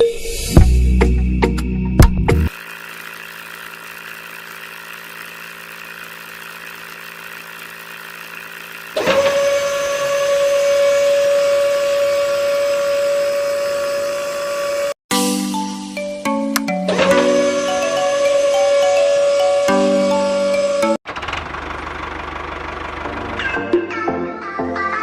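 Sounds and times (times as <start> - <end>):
motor starting with high whine: 2.5 - 15.0, 16.9 - 23.6
steady machine hum: 2.5 - 15.0.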